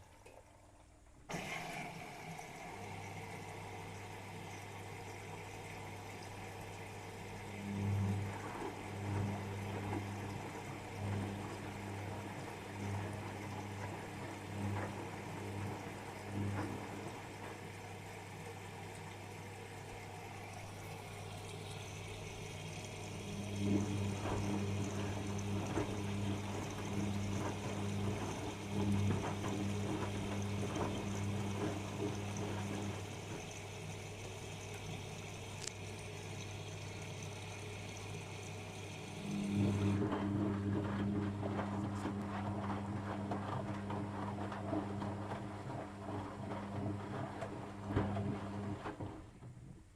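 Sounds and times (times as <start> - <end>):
washing machine pump hum: 0.0 - 49.9
water sloshing: 20.0 - 49.3.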